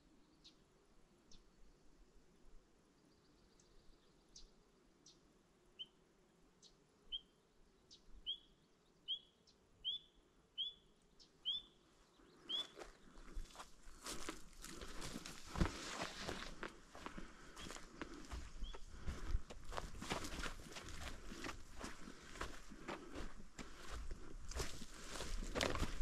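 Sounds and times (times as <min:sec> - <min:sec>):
bird calling sharp notes: 0:09.1 - 0:11.8, 0:12.4 - 0:12.8
footsteps on trail: 0:12.6 - 0:26.0.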